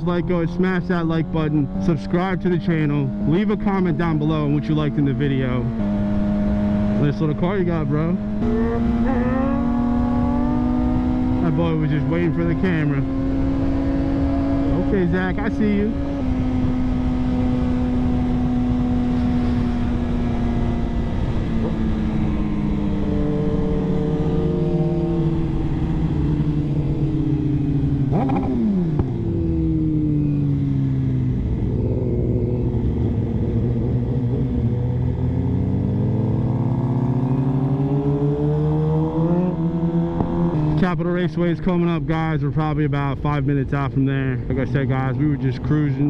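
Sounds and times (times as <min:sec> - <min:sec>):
motorcycle engine revving: 0:00.0 - 0:46.0
wind rush on microphone: 0:12.9 - 0:29.7.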